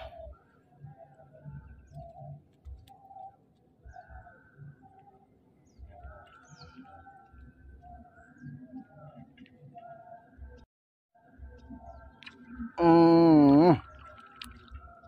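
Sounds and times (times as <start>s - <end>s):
bird calling short low notes: 12.8s - 13.8s.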